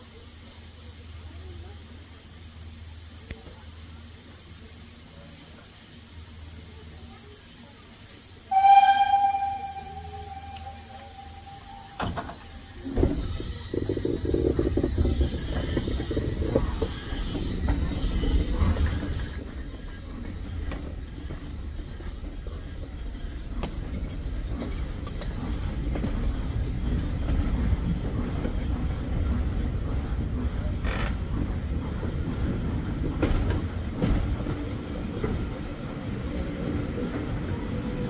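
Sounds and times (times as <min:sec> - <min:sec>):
train coaches rumbling and rattling: 0:08.4 - 0:38.0
wheels clicking over rail joints: 0:12.0 - 0:35.8.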